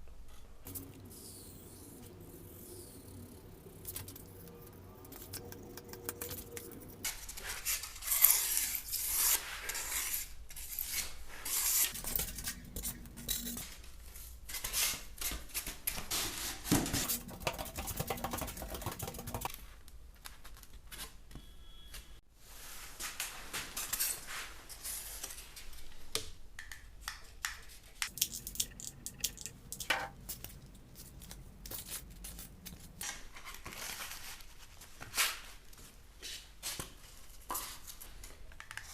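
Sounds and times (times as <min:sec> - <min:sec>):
tools clicking and scraping: 0:10.6 - 0:13.7, 0:28.0 - 0:33.1.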